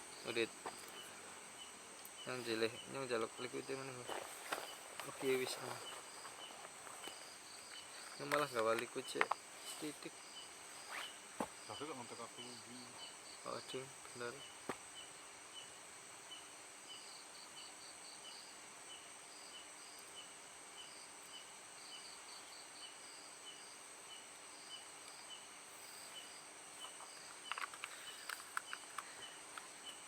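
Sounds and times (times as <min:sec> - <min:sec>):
insect chirping: 0:00.0 - 0:30.0
insects buzzing: 0:00.0 - 0:30.0
quick high insect chirps: 0:09.6 - 0:13.4
faint clicks: 0:26.8 - 0:30.0.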